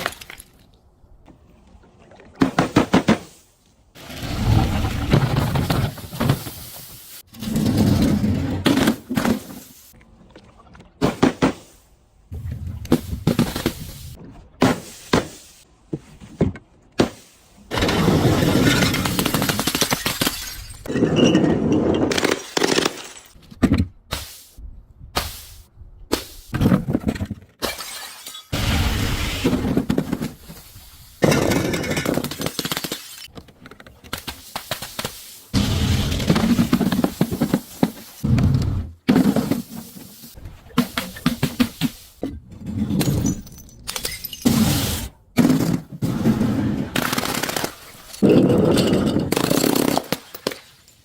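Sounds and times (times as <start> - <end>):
glass bottles breaking: 18.4 - 23.4, 27.6 - 28.6, 47.3 - 50.6.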